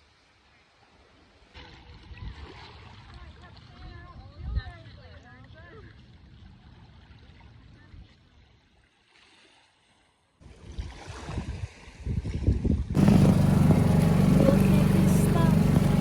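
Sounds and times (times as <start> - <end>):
wind buffeting microphone: 11.2 - 16.0
loud droning hum: 13.0 - 16.0
water noise: 13.0 - 16.0.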